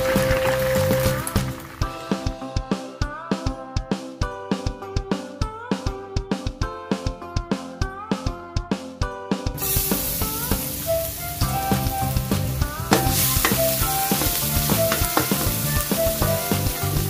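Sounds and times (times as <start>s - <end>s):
oil sizzling in a wok: 9.6s - 17.0s
wooden spatula stirring: 12.9s - 16.9s.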